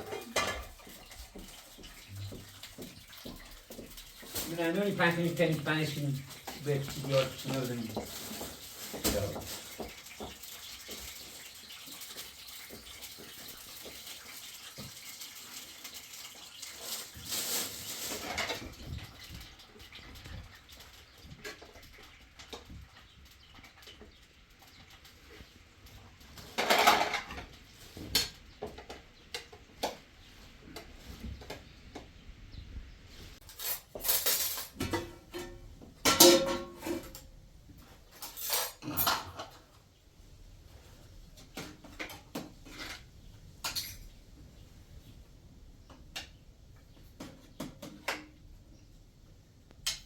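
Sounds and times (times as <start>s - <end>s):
dishes and cutlery clattering: 0.0s - 11.8s, 26.4s - 29.6s, 33.4s - 37.3s, 38.1s - 39.7s, 41.5s - 44.2s.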